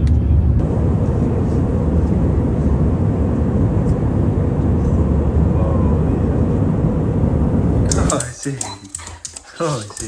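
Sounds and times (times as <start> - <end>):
jet engine and airflow noise: 0.0 - 9.0.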